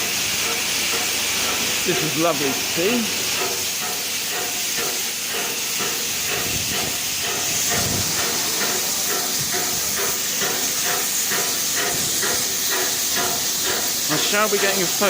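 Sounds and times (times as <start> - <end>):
steam hissing: 0.0 - 15.0.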